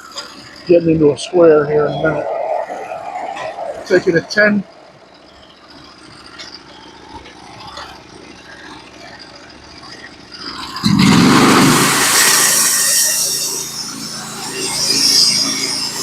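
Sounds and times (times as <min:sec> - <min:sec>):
sawmill engine: 0:00.0 - 0:16.0
band saw cutting log: 0:10.9 - 0:16.0.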